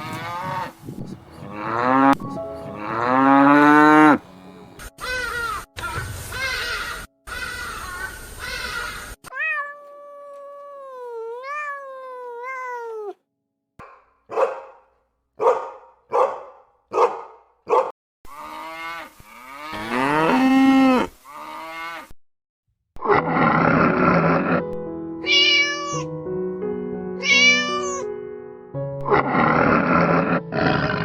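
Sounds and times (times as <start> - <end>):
long wavering animal cry: 0.0 - 13.2, 27.2 - 28.1.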